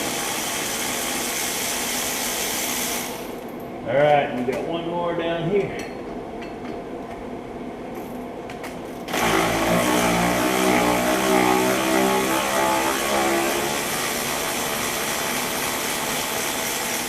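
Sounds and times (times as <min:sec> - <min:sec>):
power tool whining: 0:09.1 - 0:17.0.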